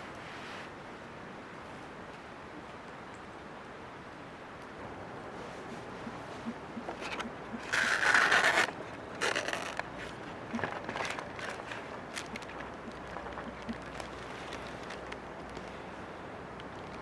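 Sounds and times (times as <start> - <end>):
small clicks and crackles: 5.6 - 17.0
short scraping sounds: 6.4 - 12.4.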